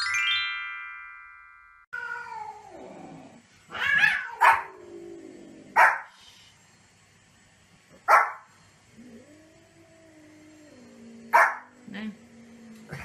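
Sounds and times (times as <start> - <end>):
cat crying: 2.0 - 2.8, 3.7 - 5.0
dog barking: 4.4 - 4.7, 5.8 - 6.1, 8.1 - 8.5, 11.3 - 11.7.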